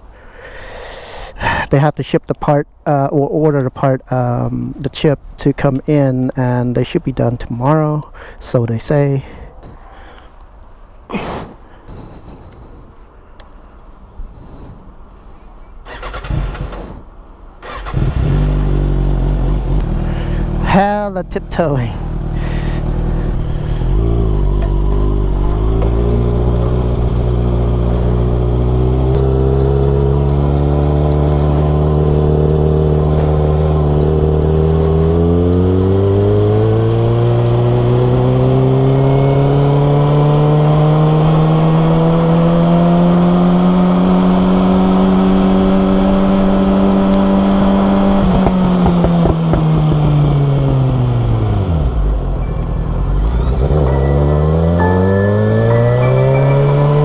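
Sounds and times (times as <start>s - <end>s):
motorcycle engine: 17.6s - 57.0s.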